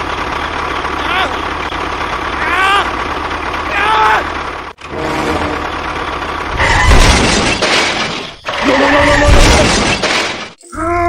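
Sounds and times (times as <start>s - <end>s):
crashing shattering noise: 6.7s - 10.6s.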